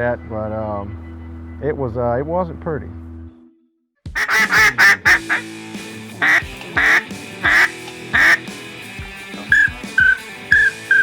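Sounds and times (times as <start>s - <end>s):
background music: 3.0s - 11.0s
loud duck quacks: 4.2s - 5.5s, 6.2s - 8.5s.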